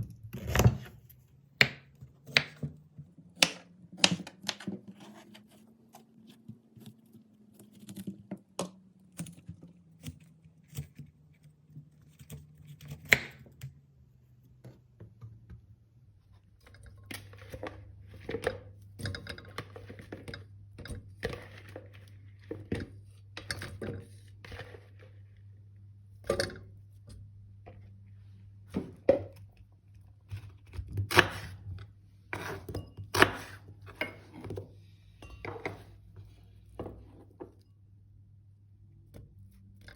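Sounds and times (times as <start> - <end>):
utensils and dishes knocking: 35.2 - 35.9.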